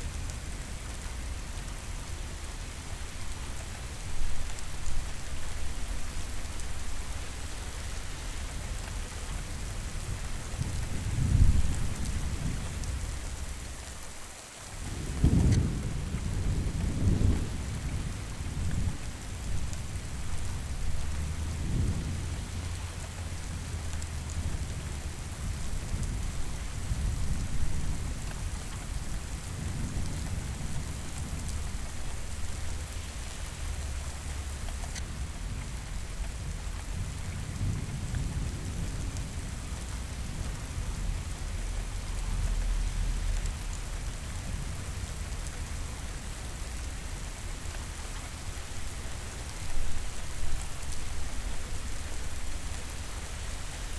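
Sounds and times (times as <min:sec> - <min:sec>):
steady rain: 0:00.0 - 0:53.9
rolling thunder: 0:14.8 - 0:32.9.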